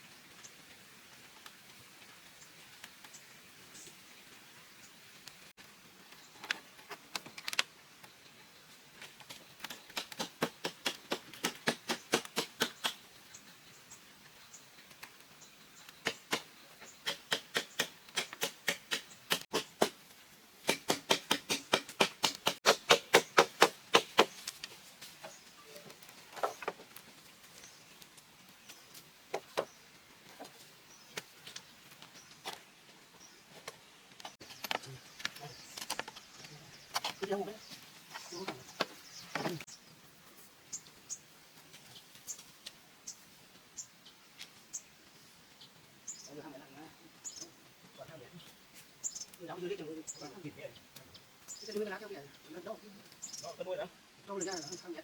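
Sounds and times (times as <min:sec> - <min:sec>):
tool striking bamboo: 0:16.0 - 0:20.0, 0:20.6 - 0:24.6.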